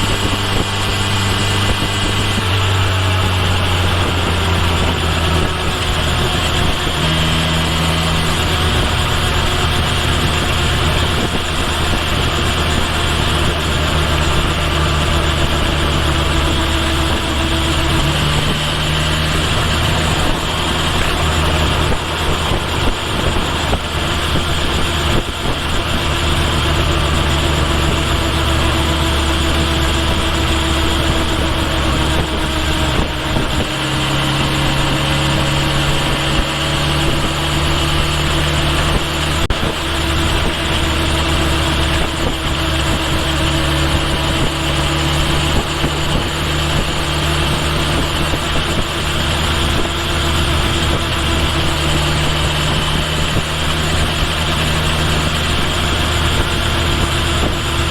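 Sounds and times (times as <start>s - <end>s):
motorcycle engine running: 0.0s - 57.9s
wind and road noise: 0.0s - 57.9s.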